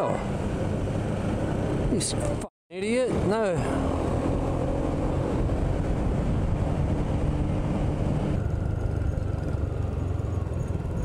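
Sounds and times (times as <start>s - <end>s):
motorbike engine drone: 3.1s - 11.0s.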